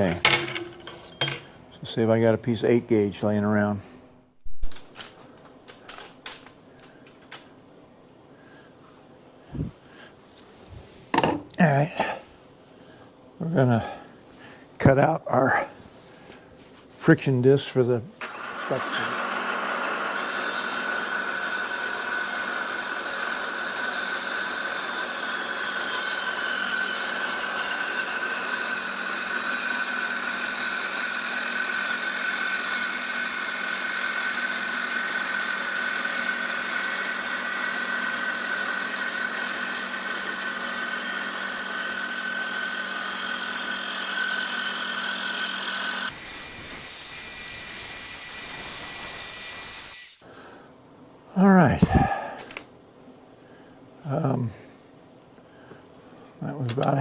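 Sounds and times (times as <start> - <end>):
cutting torch hissing: 18.3 - 50.2, 51.8 - 52.2.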